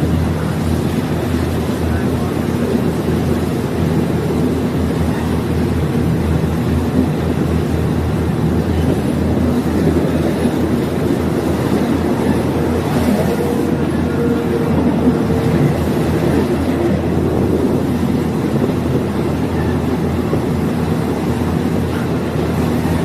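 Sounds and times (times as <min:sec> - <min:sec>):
diesel engine hum: 0:00.0 - 0:23.0
train ride rumble: 0:00.0 - 0:23.0.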